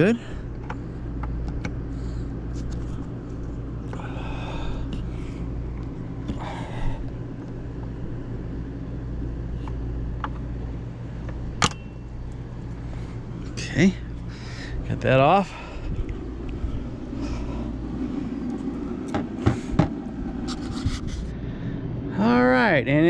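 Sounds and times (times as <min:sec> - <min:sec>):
low motor hum: 0:00.0 - 0:23.0
sharp metallic snap: 0:11.6 - 0:12.0.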